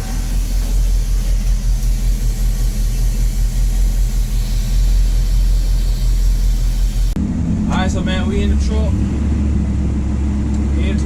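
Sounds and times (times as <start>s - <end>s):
pickup engine idling: 0.0s - 7.2s.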